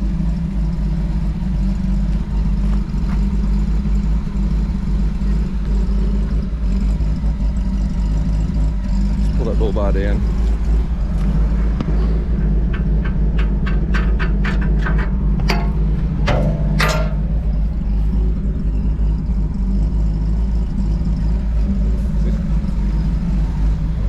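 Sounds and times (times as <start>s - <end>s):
car engine idling: 0.0s - 24.0s
sharp clicks and knocks: 10.4s - 18.3s.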